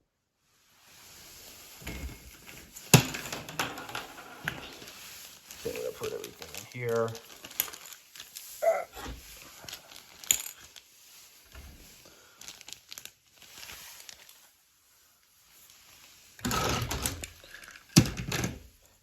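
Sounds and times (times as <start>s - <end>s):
plastic bag crinkling: 1.4s - 14.6s
plastic pieces clicking and clattering: 1.9s - 8.6s, 9.5s - 10.8s.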